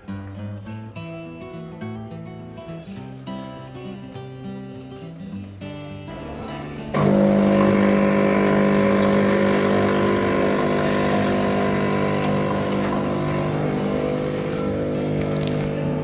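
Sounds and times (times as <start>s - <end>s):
coffee machine mechanical hum: 6.2s - 16.0s.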